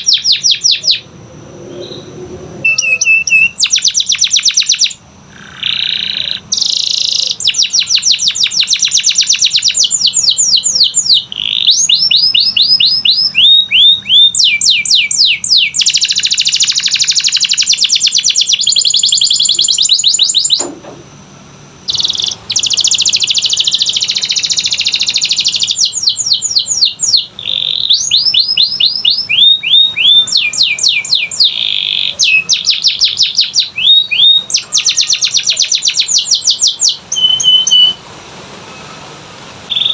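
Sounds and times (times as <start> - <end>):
canary singing: 0.0 - 20.7, 21.8 - 39.9.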